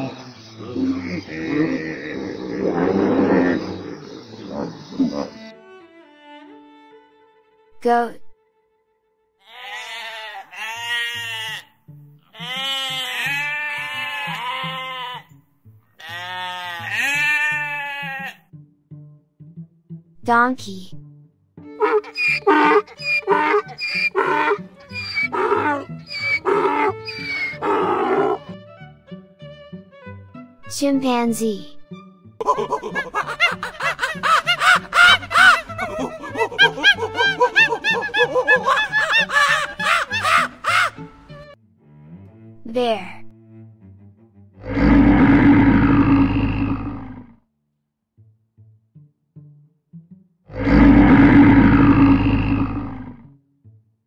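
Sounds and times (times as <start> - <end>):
goat bleating: 9.4 - 11.7, 12.3 - 15.3, 16.0 - 18.4, 21.8 - 28.4
light background music: 17.0 - 44.5
chimpanzee hooting: 21.8 - 28.5, 32.4 - 41.3.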